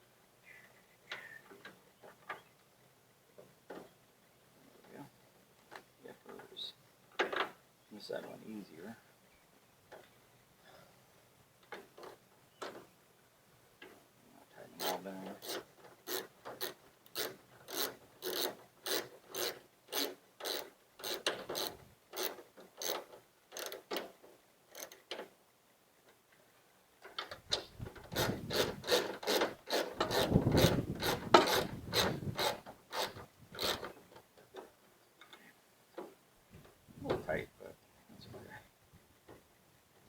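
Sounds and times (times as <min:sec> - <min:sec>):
rubbing and knocking of work: 0:14.8 - 0:25.3, 0:27.1 - 0:37.3.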